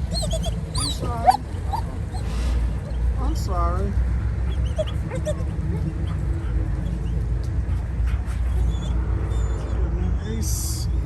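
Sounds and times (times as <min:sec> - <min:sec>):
dog whining: 0:00.0 - 0:03.1, 0:04.5 - 0:07.2, 0:08.4 - 0:09.8.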